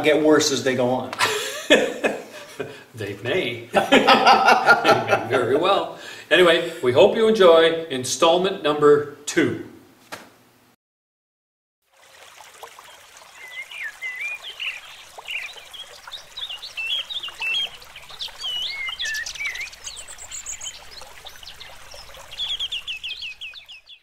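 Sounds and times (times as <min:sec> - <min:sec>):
outdoor background hiss: 0:00.0 - 0:10.8, 0:11.9 - 0:23.8
birds singing and chirping: 0:12.9 - 0:24.0
bird trill: 0:13.3 - 0:24.0.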